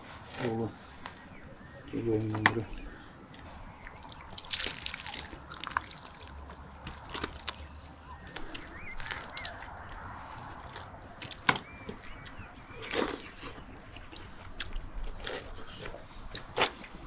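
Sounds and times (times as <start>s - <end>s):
water trickling and sloshing: 2.2s - 12.5s.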